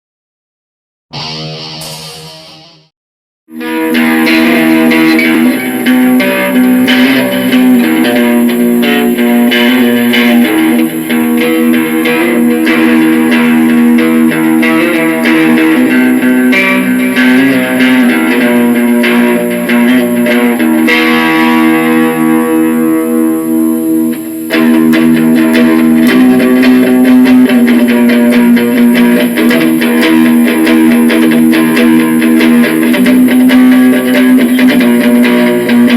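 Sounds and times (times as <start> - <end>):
held low guitar chord: 1.1 - 2.9
plucked electric guitar notes: 1.1 - 2.9, 3.5 - 35.9.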